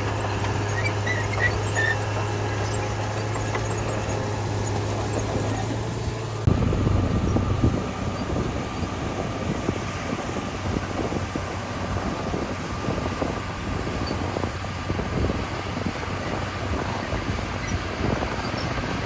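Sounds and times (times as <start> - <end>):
diesel engine drone: 0.0 - 19.0
rough engine rumble: 0.0 - 19.0.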